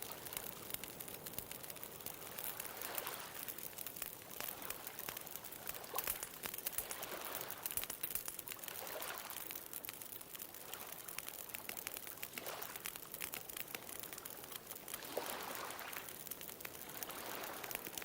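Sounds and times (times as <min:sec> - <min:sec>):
bonfire crackling: 0:00.0 - 0:18.0
ocean waves: 0:15.0 - 0:16.2, 0:16.8 - 0:17.7.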